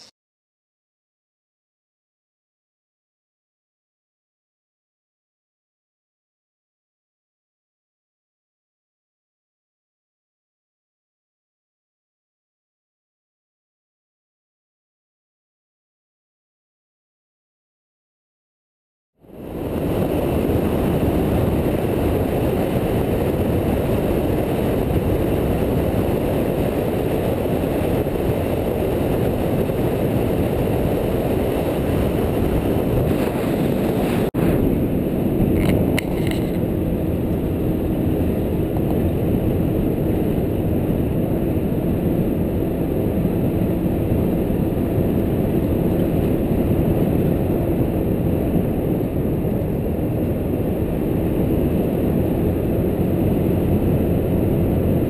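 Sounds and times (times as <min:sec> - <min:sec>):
vehicle engine rumbling: 0:19.2 - 0:55.0.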